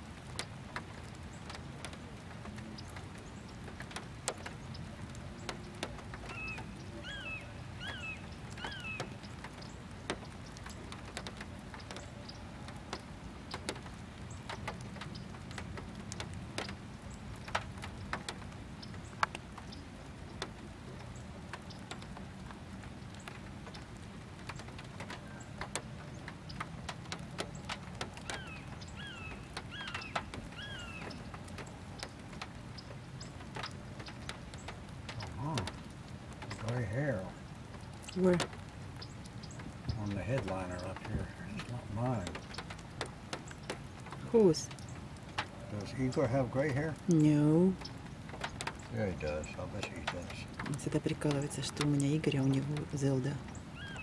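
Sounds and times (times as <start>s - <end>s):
rain drops pattering: 0.0s - 54.0s
bird calling: 4.5s - 15.6s, 27.4s - 54.0s.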